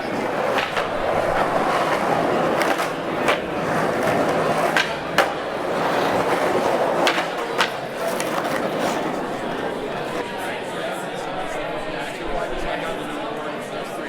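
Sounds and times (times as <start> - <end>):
skateboard clacks: 0.0 - 10.2
skateboard wheels rumbling: 0.0 - 10.2.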